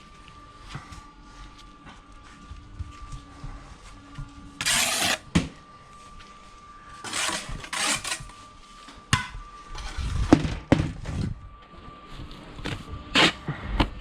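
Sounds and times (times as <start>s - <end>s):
trowel scraping mortar: 4.6s - 5.3s, 7.0s - 8.3s.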